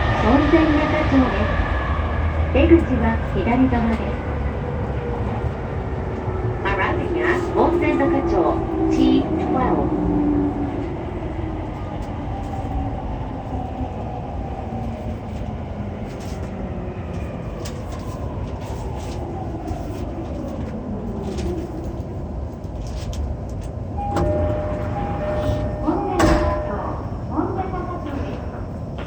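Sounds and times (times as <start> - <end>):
train running rumble: 0.0 - 29.0
steady two-note tone: 24.0 - 27.0.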